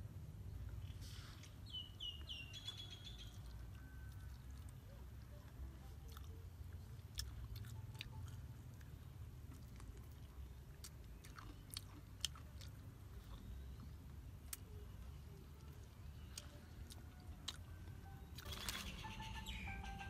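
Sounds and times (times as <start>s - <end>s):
person chewing crispy food: 0.6s - 14.7s, 15.3s - 18.8s
bird calling: 18.4s - 20.0s.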